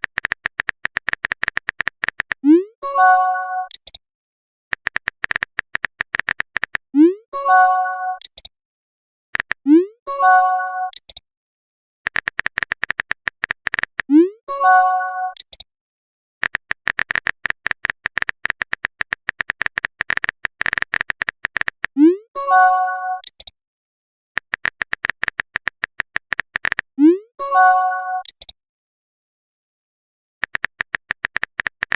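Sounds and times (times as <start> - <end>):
rapid keyboard tapping clicks: 0.0 - 2.4, 4.7 - 6.9, 9.4 - 9.6, 12.1 - 14.1, 16.4 - 22.0, 24.4 - 26.9, 30.4 - 31.9.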